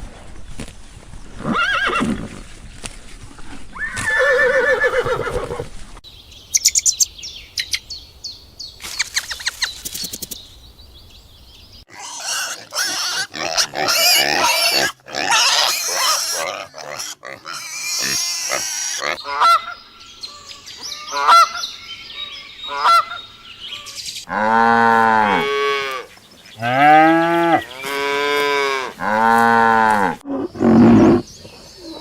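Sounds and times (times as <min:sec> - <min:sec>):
horse whinnying: 0:01.4 - 0:02.4, 0:03.8 - 0:05.7
small birds chirping: 0:06.0 - 0:11.9, 0:18.9 - 0:24.3, 0:30.3 - 0:32.0
pig oinking and squealing: 0:11.9 - 0:19.6.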